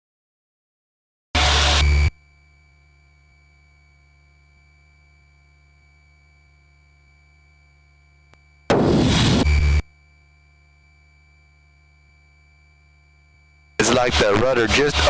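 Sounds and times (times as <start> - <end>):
low steady cockpit hum: 1.4 - 15.0
thin high tone: 9.3 - 15.0.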